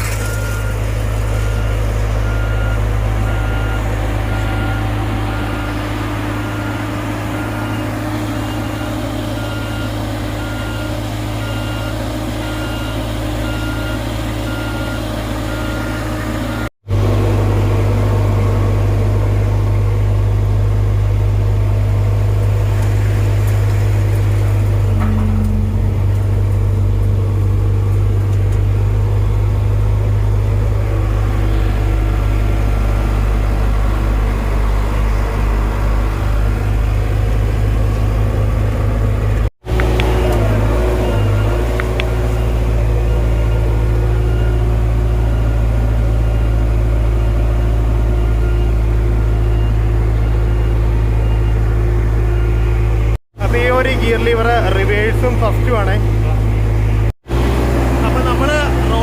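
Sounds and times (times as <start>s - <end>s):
reversing alarm beeping: 0.0s - 16.7s, 24.5s - 27.6s, 39.7s - 57.1s
deep diesel engine hum: 0.0s - 59.0s
diesel paving machinery running: 0.0s - 59.0s.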